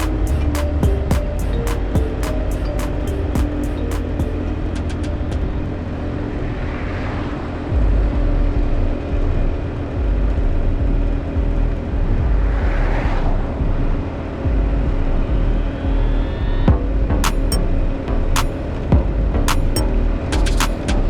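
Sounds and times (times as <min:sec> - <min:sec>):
rushing noise of passing vehicles: 0:00.0 - 0:21.0
wind rumble on microphone: 0:04.4 - 0:21.0.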